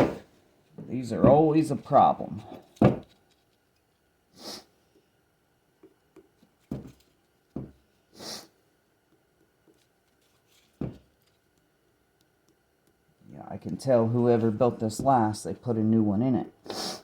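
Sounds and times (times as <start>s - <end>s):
short breathy hisses: 4.4s - 4.7s, 8.1s - 8.6s, 16.6s - 17.0s.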